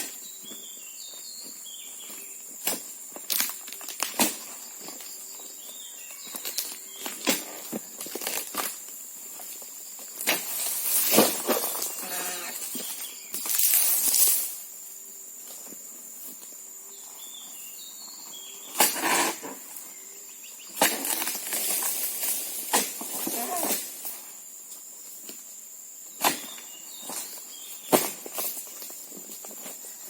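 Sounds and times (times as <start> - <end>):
rustling and crunching: 0.0 - 14.8, 20.6 - 25.5, 26.1 - 30.0.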